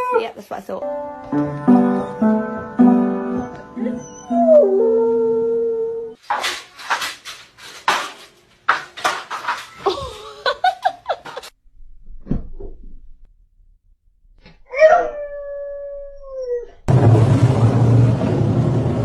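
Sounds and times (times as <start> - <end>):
music: 0.8 - 5.4
dog howling: 3.4 - 6.2, 14.7 - 16.8
dog whining yips: 3.4 - 6.2, 14.7 - 16.8.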